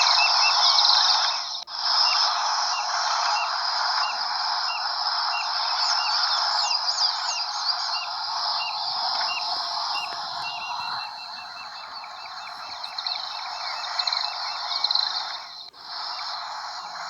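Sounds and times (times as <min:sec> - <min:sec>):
dense bird chorus: 0:00.0 - 0:17.0
looping bird whistles: 0:04.7 - 0:17.0.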